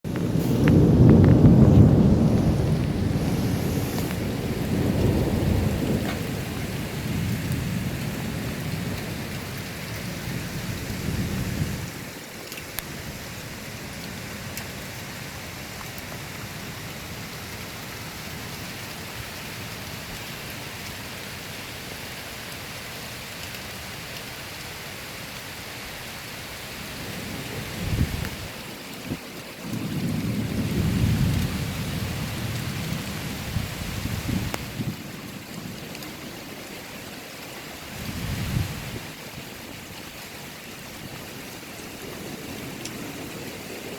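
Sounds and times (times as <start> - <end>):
thunder rumbling: 0.0 - 12.1, 27.0 - 36.1
steady rain: 0.0 - 43.9.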